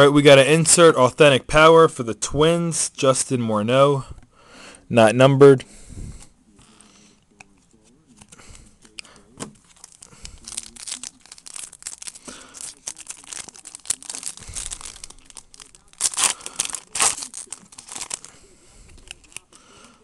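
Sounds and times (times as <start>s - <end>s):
cards rustling: 6.6s - 20.0s
foil wrapper crinkling and tearing: 9.6s - 18.4s, 19.0s - 20.0s.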